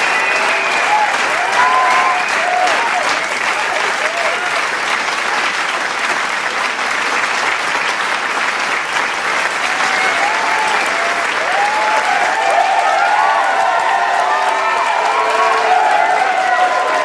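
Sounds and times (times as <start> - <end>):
shouted cheers: 0.0 - 4.7, 9.5 - 17.0
crowd applauding: 0.0 - 17.0.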